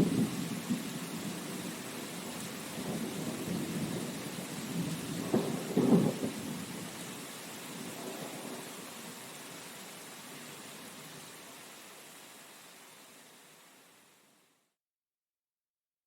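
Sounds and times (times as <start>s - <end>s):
rolling thunder: 0.0s - 1.4s, 2.8s - 6.8s
steady rain hiss: 0.0s - 14.8s.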